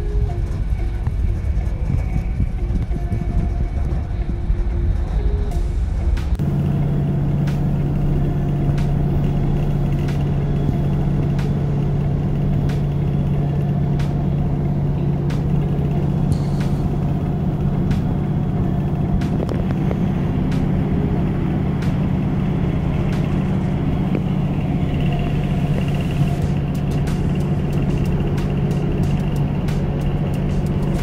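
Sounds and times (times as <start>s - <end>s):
train rumble inside carriage: 0.0s - 31.0s
train wheel clicks: 25.0s - 31.0s.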